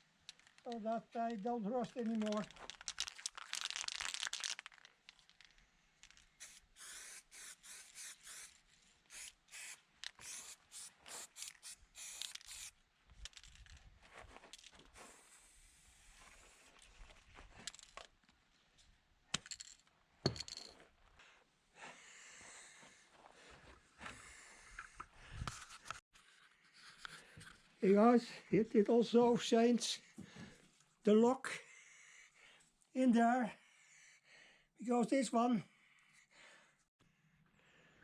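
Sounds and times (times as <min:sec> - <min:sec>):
spray paint hissing: 0:06.4 - 0:12.8.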